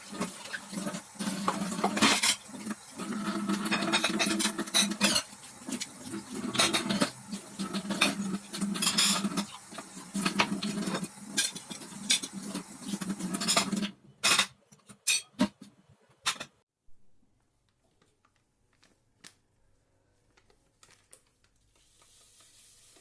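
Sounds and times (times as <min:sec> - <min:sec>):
dishes and cutlery clattering: 0:01.4 - 0:09.6, 0:10.2 - 0:15.6.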